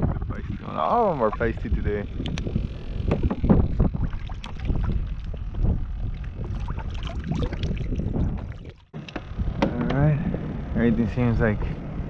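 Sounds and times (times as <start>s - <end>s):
wind on microphone: 0.0s - 12.0s
water sounds: 0.2s - 9.2s
knocks and clicks of gear: 2.2s - 3.9s, 8.9s - 10.5s.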